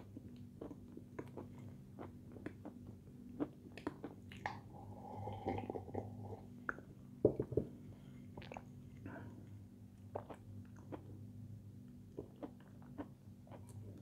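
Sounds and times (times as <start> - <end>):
chewing crunchy sweets: 12.1 - 14.0.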